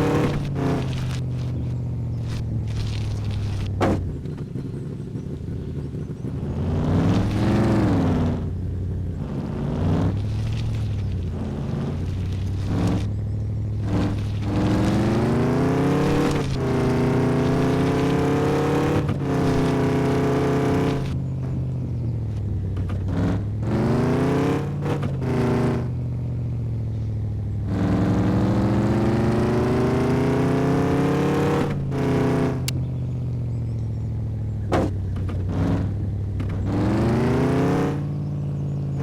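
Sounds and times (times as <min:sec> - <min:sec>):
truck engine revving through gears: 0:00.0 - 0:39.0.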